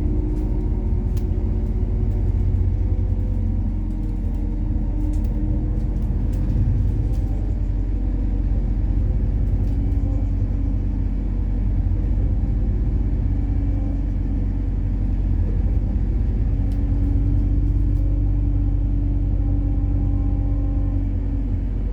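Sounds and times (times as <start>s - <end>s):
bus engine rumble: 0.0s - 21.9s
faint ticks and rattles: 0.2s - 7.6s.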